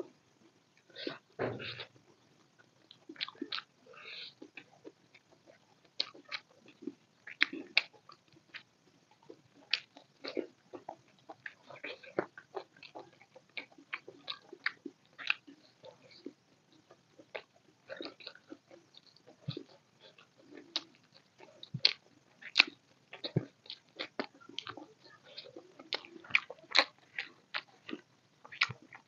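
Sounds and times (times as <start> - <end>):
chewing and mouth smacking: 0.8 - 29.0.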